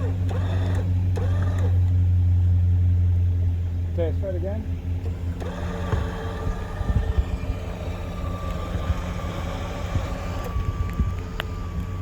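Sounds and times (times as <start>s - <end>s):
electric winches whining: 0.0s - 2.0s, 5.0s - 12.0s
engine running low rumble: 0.0s - 12.0s.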